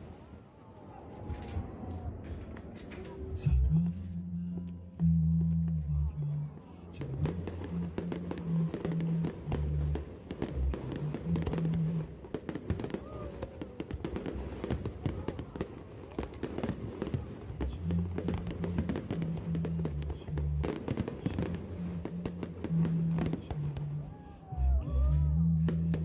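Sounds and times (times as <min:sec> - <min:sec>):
music playing: 0:03.4 - 0:15.1, 0:17.5 - 0:26.0
fireworks popping and crackling: 0:07.0 - 0:24.2.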